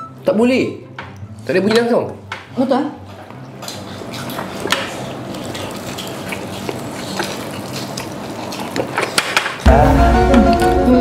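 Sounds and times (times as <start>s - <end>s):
chewing crispy fried chicken: 3.5s - 11.0s.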